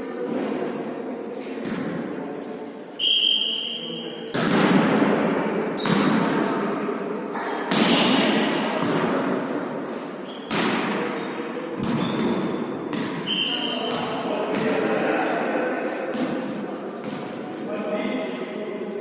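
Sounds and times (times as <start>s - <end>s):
volleyball hits echoing in hall: 1.4s - 2.4s, 3.0s - 18.6s
high steady whistle: 3.0s - 4.3s, 13.2s - 13.9s.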